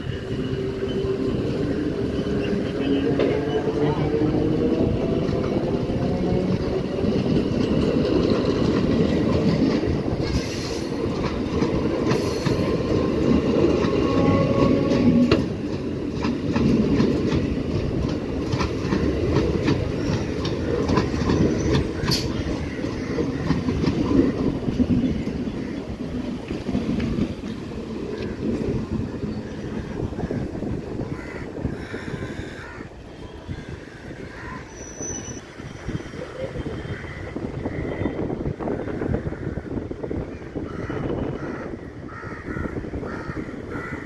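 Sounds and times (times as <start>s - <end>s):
train wheels rumbling on rails: 0.0s - 44.0s
wheels clicking over rail joints: 4.8s - 29.2s.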